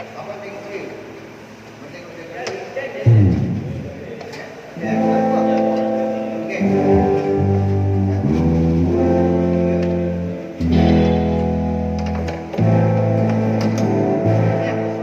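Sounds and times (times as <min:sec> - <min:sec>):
bass line: 0:03.1 - 0:04.2
guitar chords: 0:03.1 - 0:15.0.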